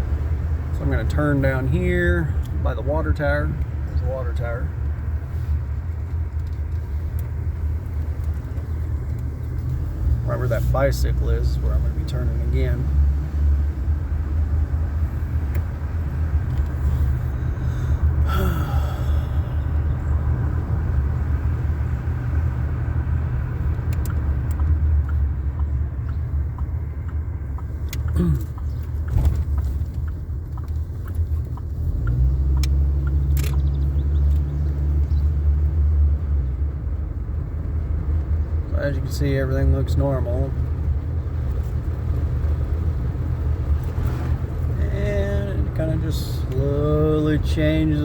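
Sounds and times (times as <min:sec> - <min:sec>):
car engine and road noise: 0:00.0 - 0:48.0.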